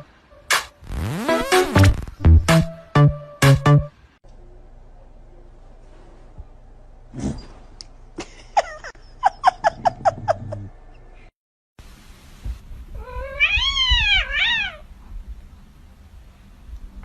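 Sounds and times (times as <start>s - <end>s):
cat meowing: 13.0s - 14.9s.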